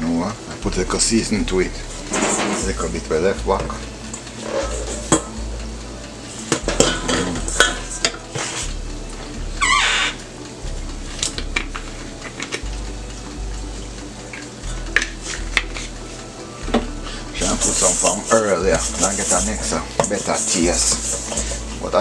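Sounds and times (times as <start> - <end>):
utensil scraping a cooking pot: 1.6 - 8.8, 17.1 - 22.0.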